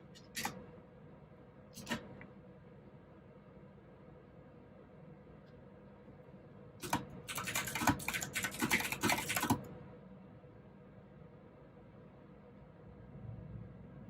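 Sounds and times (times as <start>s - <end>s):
clicky mechanical keyboard typing: 0.2s - 0.6s, 1.8s - 2.1s, 6.8s - 9.7s.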